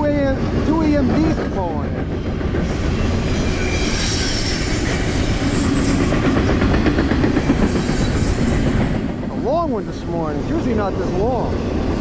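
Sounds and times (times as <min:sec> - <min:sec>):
train wheels rumbling on rails: 0:00.0 - 0:12.0
wheels squealing: 0:02.6 - 0:09.0.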